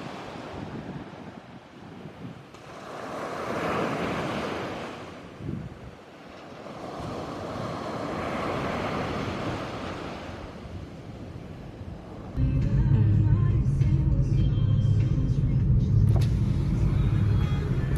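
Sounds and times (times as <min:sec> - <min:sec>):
sea waves breaking on shore: 0:00.0 - 0:12.4
wind on microphone: 0:00.0 - 0:12.4.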